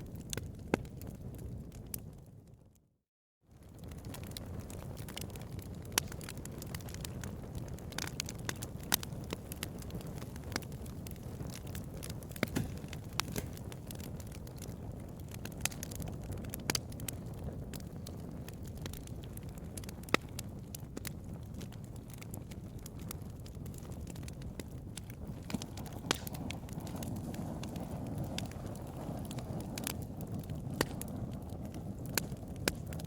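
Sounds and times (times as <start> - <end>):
fire pops and snaps: 0.0 - 2.4, 3.6 - 33.0
bonfire rumble: 0.0 - 2.7, 3.5 - 33.0.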